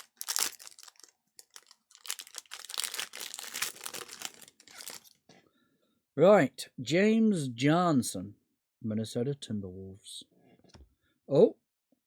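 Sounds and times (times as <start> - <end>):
card pack wrapper crinkling: 0.0 - 5.1.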